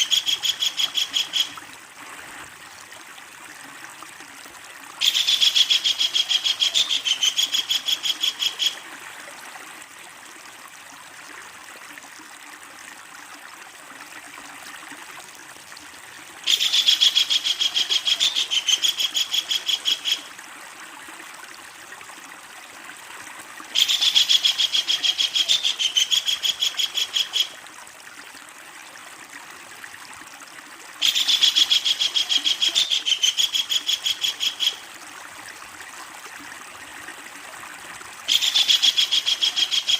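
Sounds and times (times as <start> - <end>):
steady hiss like running water: 0.0 - 39.9
kingfisher rattling calls: 38.3 - 39.9.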